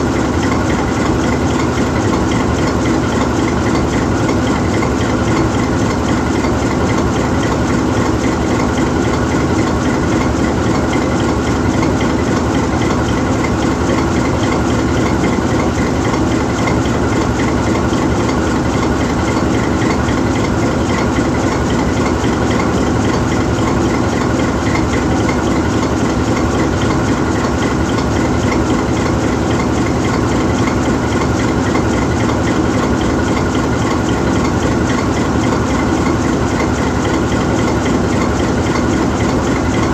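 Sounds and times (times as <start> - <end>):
locomotive diesel engine idling: 0.0 - 39.9.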